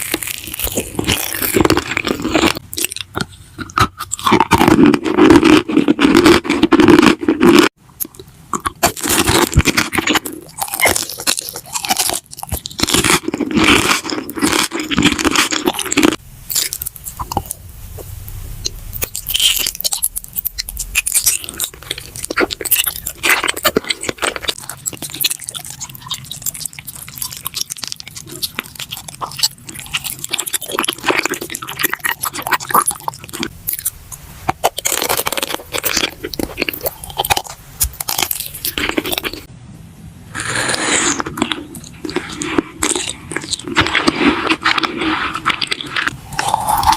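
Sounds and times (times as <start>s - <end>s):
crunchy chewing: 0.0s - 17.6s, 18.6s - 39.5s, 40.4s - 46.9s.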